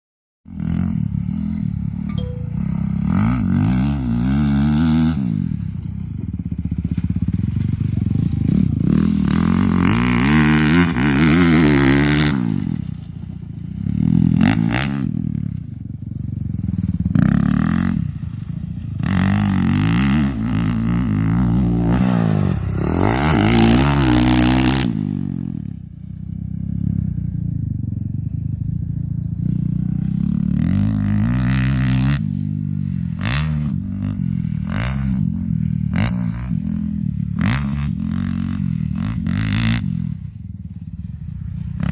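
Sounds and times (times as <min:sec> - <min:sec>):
dirt bike engine revving: 0:00.5 - 0:27.6, 0:28.9 - 0:41.9.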